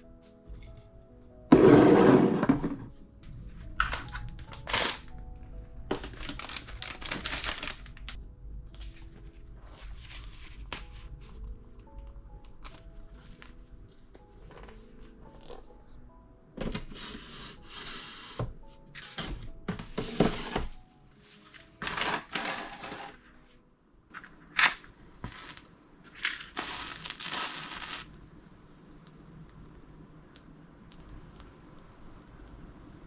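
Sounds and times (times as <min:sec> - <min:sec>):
soft background music: 0:00.0 - 0:33.0
packaging crinkling and rustling: 0:03.6 - 0:05.2, 0:05.9 - 0:08.2, 0:21.4 - 0:23.2, 0:24.1 - 0:28.1.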